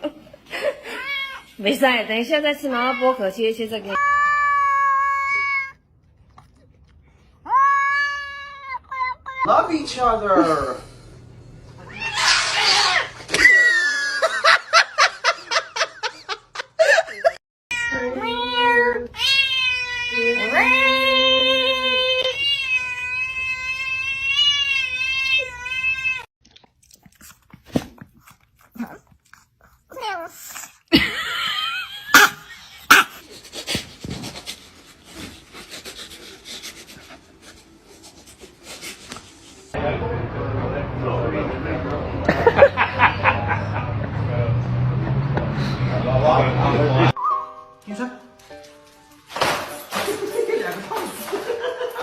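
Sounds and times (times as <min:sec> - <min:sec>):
dog panting: 0:32.7 - 0:39.8.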